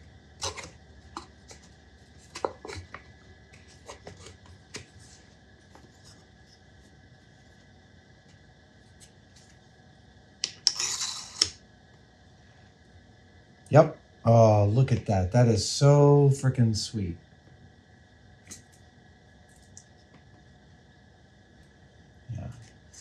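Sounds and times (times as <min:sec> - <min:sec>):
scraping rub: 0:00.4 - 0:06.6, 0:10.6 - 0:11.6.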